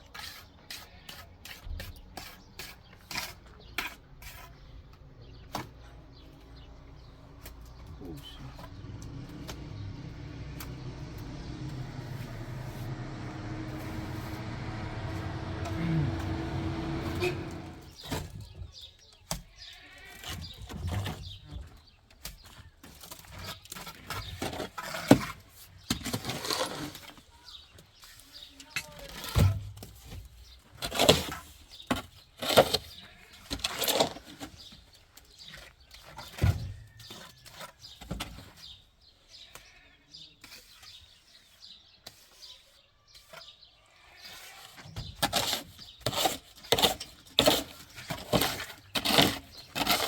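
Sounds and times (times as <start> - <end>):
trowel scraping plaster: 0.0 - 4.9, 8.1 - 18.3, 23.0 - 27.2, 40.4 - 50.0
mechanical hum: 7.1 - 18.0
farm animal bleating: 19.5 - 20.5, 32.9 - 33.5, 39.4 - 40.4, 43.8 - 44.6.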